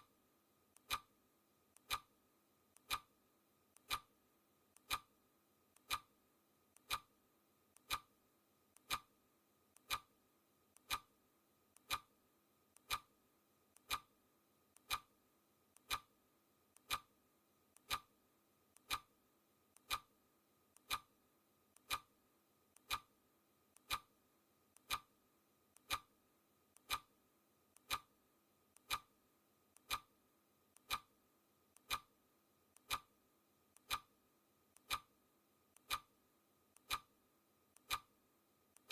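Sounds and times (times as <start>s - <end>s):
clock ticking: 0.7s - 1.1s, 1.7s - 2.1s, 2.7s - 3.1s, 3.7s - 4.1s, 4.7s - 5.1s, 5.7s - 6.1s, 6.7s - 7.1s, 7.7s - 8.1s, 8.7s - 9.1s, 9.7s - 11.1s, 11.7s - 12.1s, 12.7s - 13.1s, 13.7s - 14.1s, 14.7s - 15.1s, 15.7s - 16.1s, 16.7s - 17.1s, 17.7s - 18.1s, 18.7s - 19.1s, 19.7s - 22.1s, 22.7s - 33.2s, 33.8s - 37.2s, 37.8s - 38.2s.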